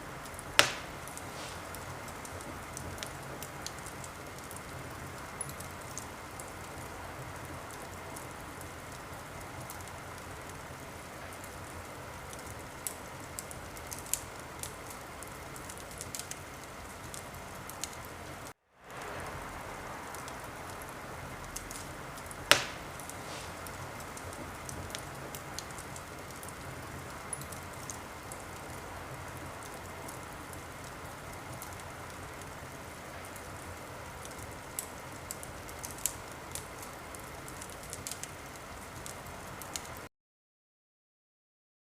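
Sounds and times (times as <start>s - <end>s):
wood fire crackling: 0.0s - 40.1s
loud fire pop: 0.5s - 1.8s, 22.4s - 24.5s.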